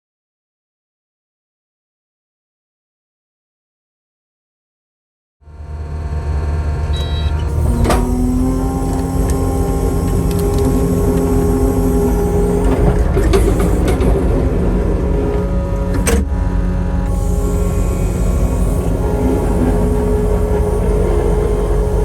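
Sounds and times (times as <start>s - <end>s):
chainsaw cutting through log: 7.5s - 16.3s, 17.0s - 22.0s.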